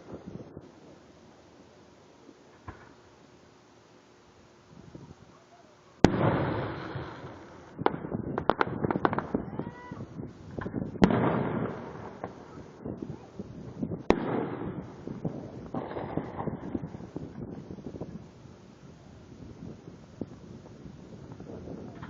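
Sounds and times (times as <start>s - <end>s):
fireworks sharp cracks: 0.0s - 1.2s, 2.2s - 3.3s, 6.0s - 22.0s
fireworks rolling rumble: 0.0s - 22.0s
fireworks bangs: 6.0s - 22.0s.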